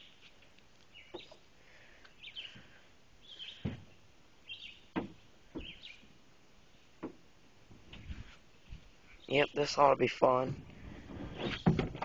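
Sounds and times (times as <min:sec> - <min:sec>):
bird chirping call: 0:00.9 - 0:01.4, 0:03.2 - 0:03.7, 0:04.4 - 0:05.0, 0:05.6 - 0:06.1.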